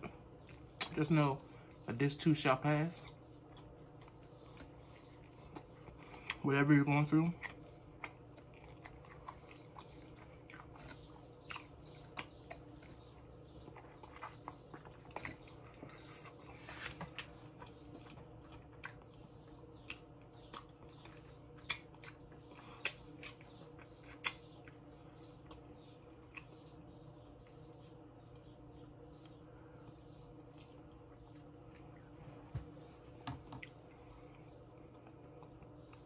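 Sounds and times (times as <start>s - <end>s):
chewing with wet clicks: 0.0s - 1.8s, 3.0s - 6.5s, 7.1s - 16.4s, 17.1s - 32.1s, 33.2s - 36.0s
faint steady hum: 0.0s - 36.0s
lip smacks: 22.8s - 23.5s, 24.2s - 24.8s.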